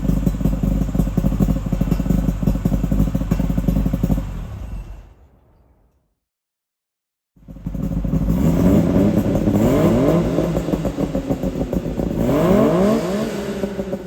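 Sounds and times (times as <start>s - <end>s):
two-stroke engine revving: 7.6s - 14.0s.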